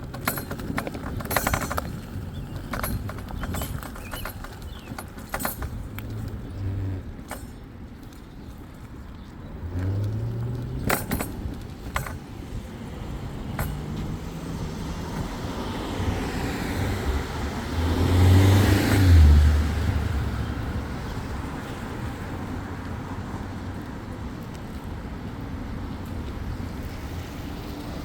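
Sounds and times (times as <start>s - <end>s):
road traffic noise: 0.0s - 28.0s
vehicle passing close by: 9.5s - 11.6s, 12.4s - 22.4s.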